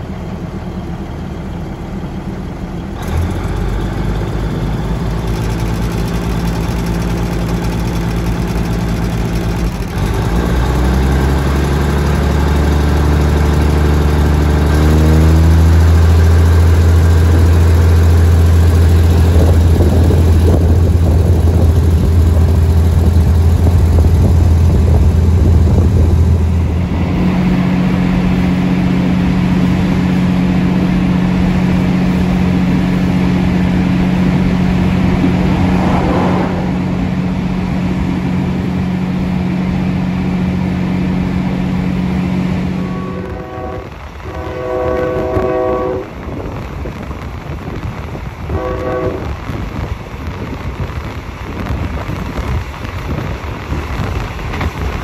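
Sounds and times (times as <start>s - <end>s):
track and wind noise: 0.0s - 55.0s
train engine drone: 0.0s - 55.0s
locomotive horn blasts: 42.7s - 46.2s, 48.5s - 49.4s.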